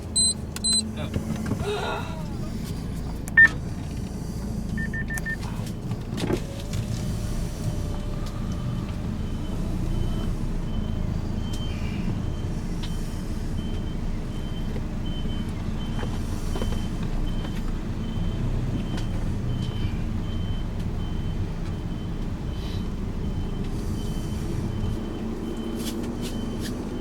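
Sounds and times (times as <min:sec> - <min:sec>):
vehicle engine and road rumble: 0:00.0 - 0:27.0
high electronic beeps: 0:00.2 - 0:00.9, 0:04.8 - 0:05.4.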